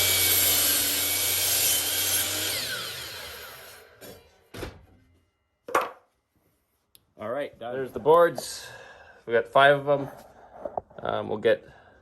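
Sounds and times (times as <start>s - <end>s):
wooden knocks: 5.7s - 6.1s.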